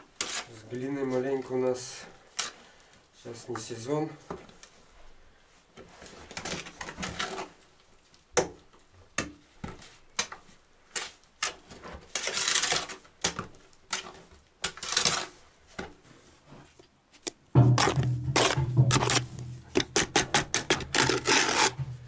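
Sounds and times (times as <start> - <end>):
scraping strokes: 17.6 - 22.0.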